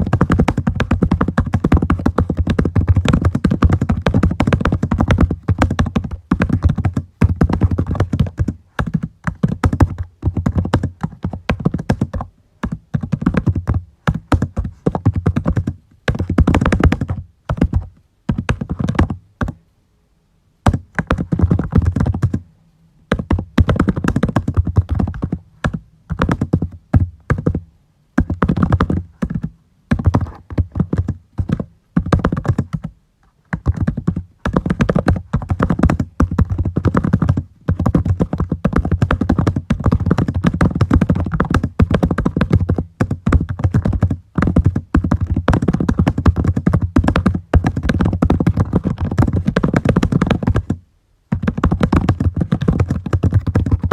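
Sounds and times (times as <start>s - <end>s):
typing on computer keyboard: 0.0s - 19.6s, 33.5s - 53.9s.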